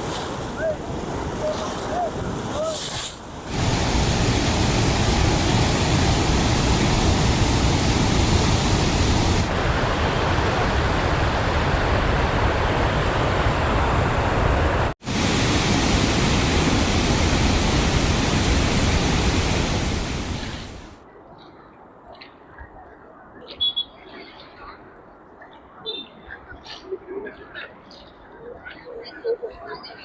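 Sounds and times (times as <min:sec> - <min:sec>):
rushing falling water: 0:00.0 - 0:21.0.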